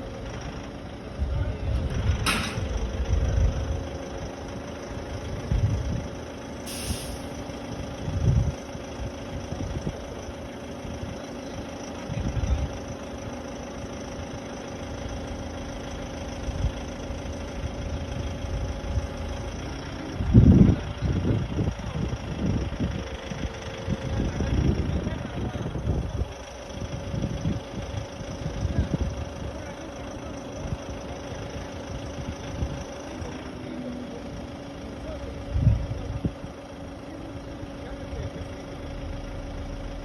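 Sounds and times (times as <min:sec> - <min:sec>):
low rumbles: 0:00.0 - 0:13.4, 0:14.9 - 0:33.5, 0:34.2 - 0:40.0
vehicle engine idling: 0:00.0 - 0:40.0.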